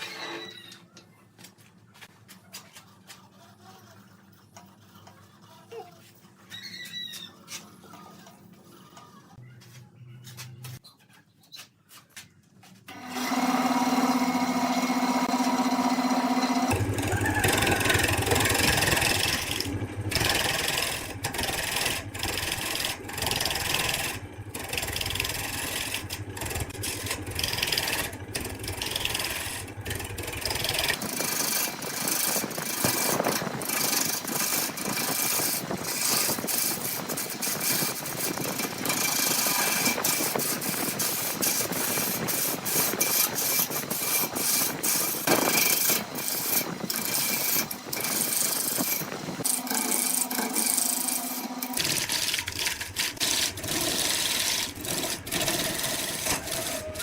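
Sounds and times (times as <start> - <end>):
lathe grinding wood: 12.9 - 57.0
motor hum: 12.9 - 57.0.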